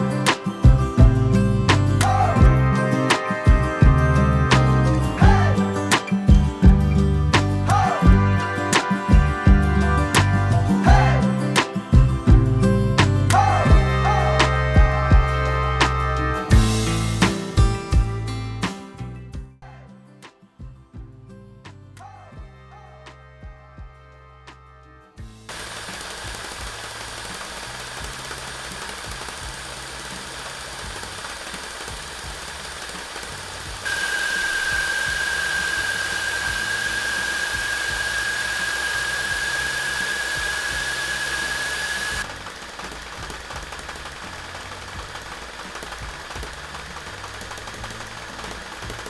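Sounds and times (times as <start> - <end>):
stick vacuum cleaner motor whine: 25.5 - 49.0.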